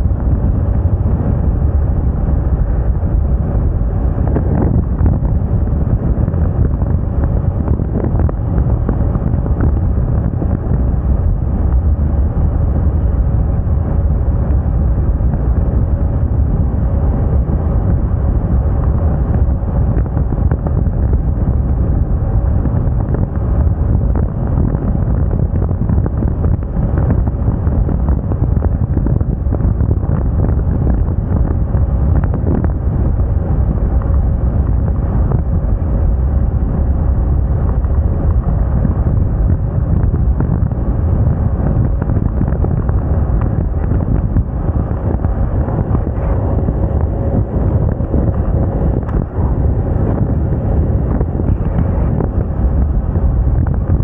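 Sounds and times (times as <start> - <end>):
scooter engine hum: 0.0 - 54.0
wind buffeting microphone: 0.0 - 54.0.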